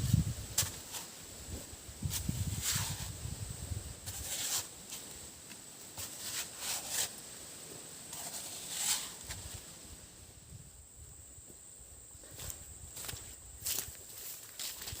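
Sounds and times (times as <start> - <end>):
rustling dry leaves and brush: 0.0 - 10.2, 12.3 - 15.0.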